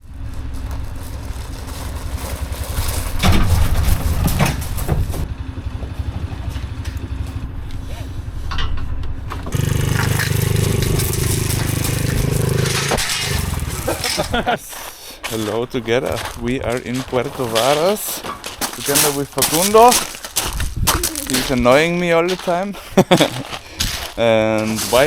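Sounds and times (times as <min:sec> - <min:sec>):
motorcycle engine running: 0:00.2 - 0:08.4, 0:09.5 - 0:14.5.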